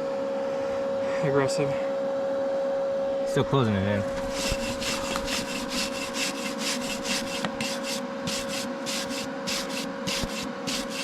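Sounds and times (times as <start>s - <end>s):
steady hum: 0.0s - 11.0s
wire brush scrubbing metal: 4.2s - 11.0s.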